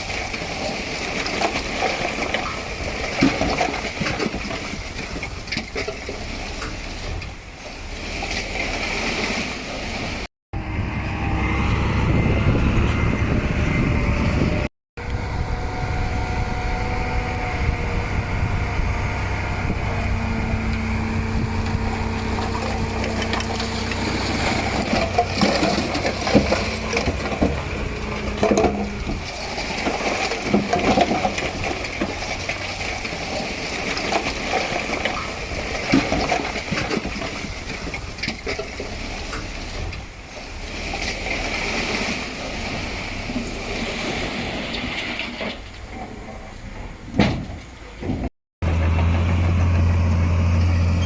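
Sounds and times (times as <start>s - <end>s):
diesel engine running: 10.5s - 36.7s, 48.6s - 51.0s
clanks and knocks: 21.6s - 39.5s, 45.4s - 50.4s.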